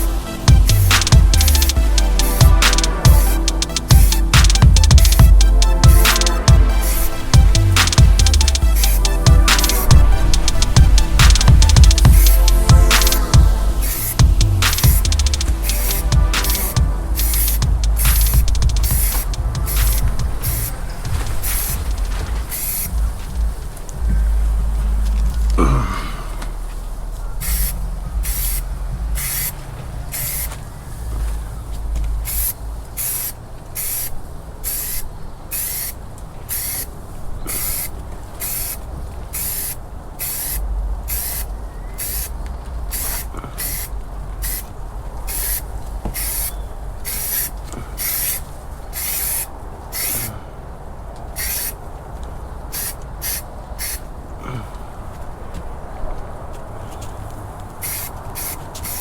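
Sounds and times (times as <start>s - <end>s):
spray gun hissing bursts: 0.0s - 23.5s, 27.4s - 30.5s, 32.3s - 36.9s, 37.5s - 42.3s, 42.9s - 44.7s, 45.3s - 50.3s, 51.4s - 51.8s, 52.7s - 54.0s, 57.8s - 59.0s.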